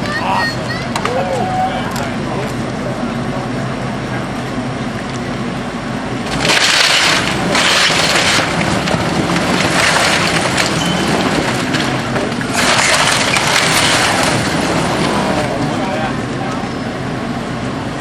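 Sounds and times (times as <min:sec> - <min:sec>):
building crackling and breaking: 0:06.3 - 0:15.6.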